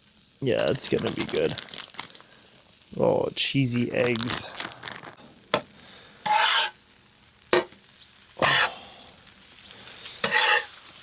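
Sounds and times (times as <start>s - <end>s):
eggs sizzling in a pan: 0.0s - 11.0s
spatula scraping pan: 6.2s - 6.8s, 8.4s - 8.8s, 10.0s - 11.0s.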